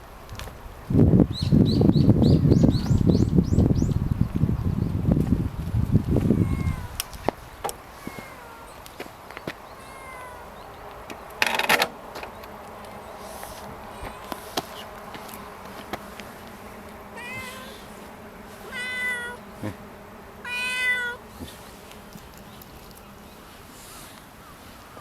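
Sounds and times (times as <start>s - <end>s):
kitten meowing: 6.3s - 7.0s, 8.0s - 8.8s, 9.8s - 10.6s, 13.9s - 14.6s, 17.2s - 17.8s, 18.7s - 19.4s, 20.4s - 21.2s.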